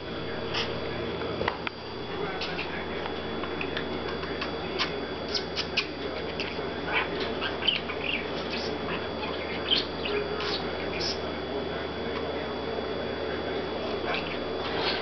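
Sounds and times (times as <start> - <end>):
parakeet chattering: 2.4 - 2.8, 4.4 - 11.3, 14.0 - 15.0.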